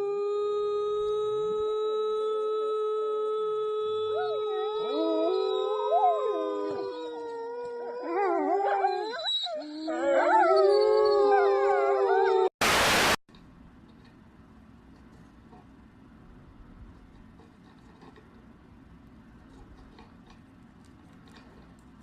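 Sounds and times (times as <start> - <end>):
dog howling: 0.0 - 12.5
loud burst of hiss: 12.6 - 13.2.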